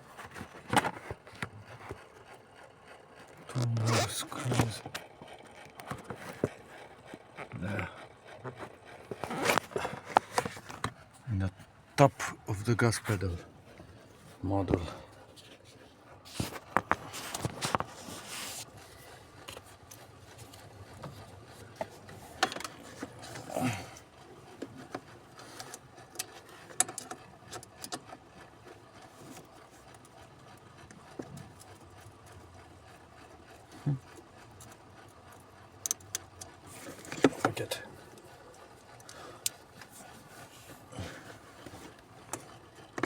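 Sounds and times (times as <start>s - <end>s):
hand tools clicking on plastic parts: 0.2s - 2.4s, 3.2s - 11.2s, 19.4s - 28.2s, 34.0s - 39.9s.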